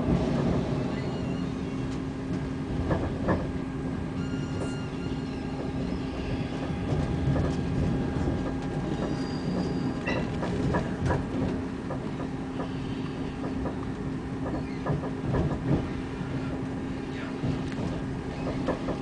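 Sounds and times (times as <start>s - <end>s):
train rumble and hum: 0.0s - 19.0s
faint high wheel squeal: 0.8s - 2.0s, 4.2s - 7.3s, 8.8s - 10.5s
wheels clicking over rail joints: 6.5s - 12.8s, 13.4s - 16.6s, 17.4s - 19.0s.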